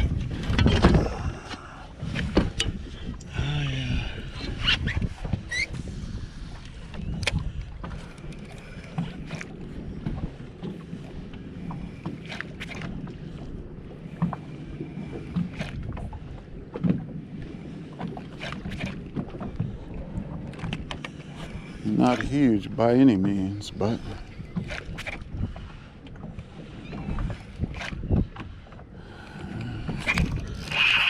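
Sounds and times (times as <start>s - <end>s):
water lapping against boat hull: 0.0s - 31.0s
wind on microphone: 0.0s - 31.0s.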